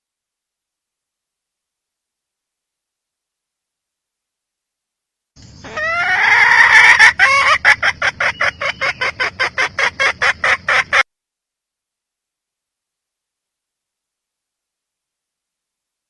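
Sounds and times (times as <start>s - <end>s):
hen cackling: 5.4s - 11.1s.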